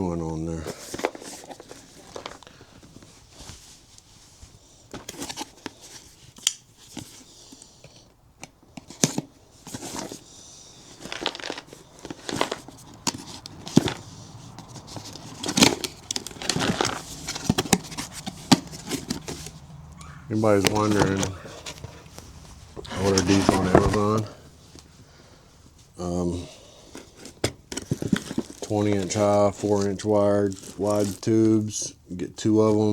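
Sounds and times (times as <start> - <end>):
packaging torn and crinkled: 10.8 - 19.8.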